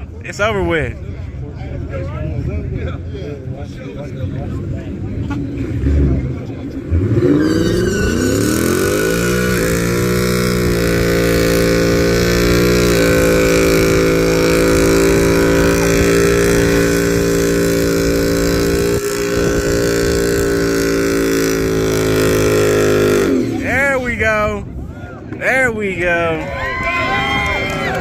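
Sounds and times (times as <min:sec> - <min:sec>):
car engine revving: 0:05.5 - 0:24.6.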